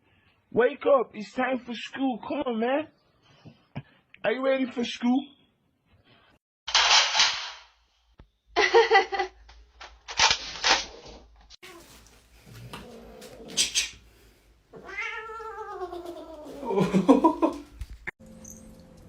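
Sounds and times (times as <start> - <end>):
cat meowing: 14.7 - 16.6.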